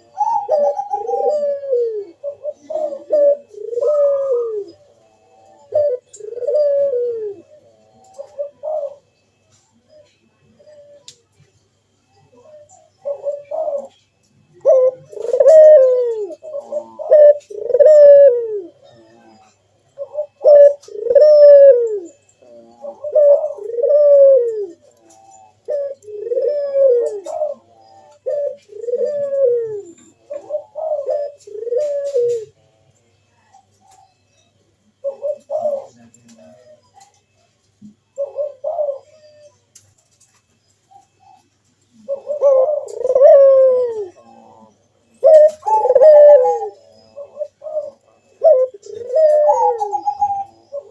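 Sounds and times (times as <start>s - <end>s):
dove cooing: 0.0s - 50.9s.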